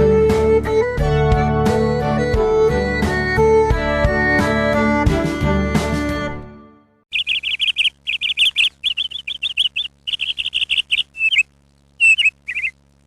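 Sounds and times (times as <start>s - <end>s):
small bird chirping: 7.1s - 13.0s.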